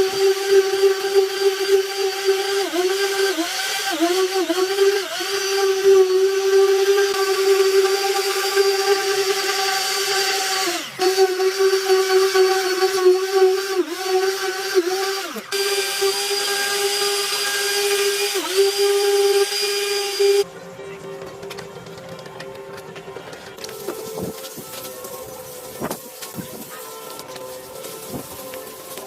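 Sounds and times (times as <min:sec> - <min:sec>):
small high-speed electric tool: 0:00.0 - 0:20.4.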